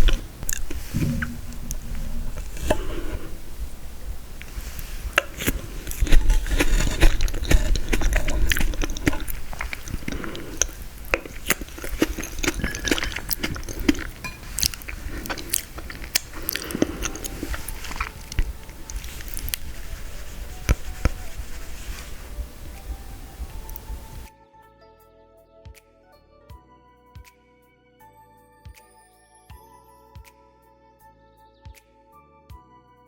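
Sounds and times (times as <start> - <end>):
mouth chewing frozen dessert: 0.0 - 24.3
sharp mouth clicks and smacks: 0.0 - 24.3.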